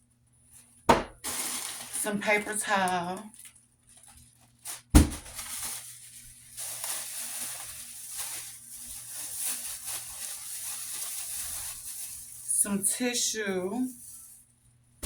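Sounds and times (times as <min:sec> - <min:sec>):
plastic wrapper crinkling: 0:00.6 - 0:12.9, 0:13.7 - 0:14.5
pack thumping down: 0:04.9 - 0:05.6.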